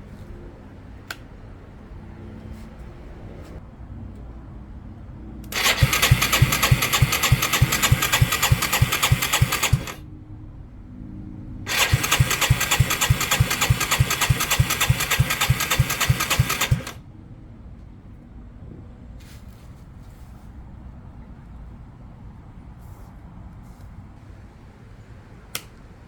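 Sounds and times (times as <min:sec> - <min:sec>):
electric starter cranking engine: 0:05.5 - 0:10.0, 0:11.7 - 0:17.0.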